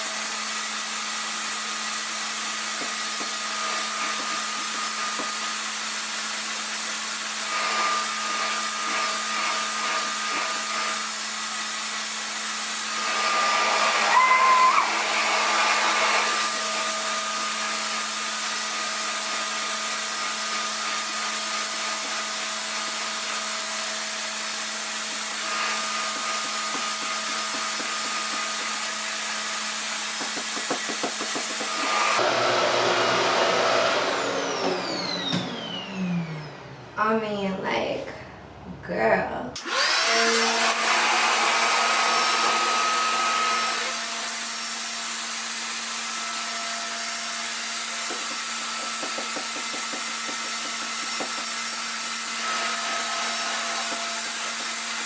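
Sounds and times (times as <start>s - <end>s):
hair dryer running: 0.0s - 36.1s, 39.6s - 55.0s
wavering whistle: 14.1s - 14.9s.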